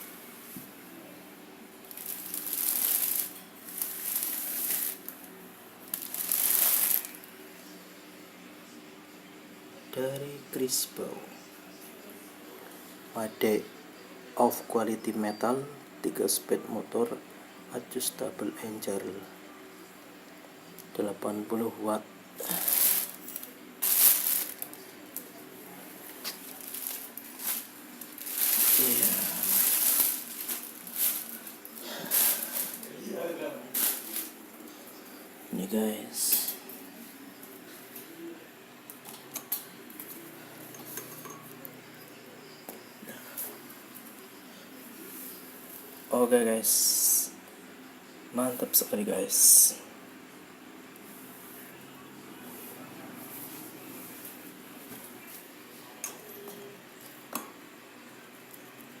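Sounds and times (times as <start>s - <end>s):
packaging crinkling and rustling: 1.9s - 5.2s, 5.9s - 7.2s, 22.4s - 25.3s, 26.1s - 32.9s, 33.7s - 34.4s.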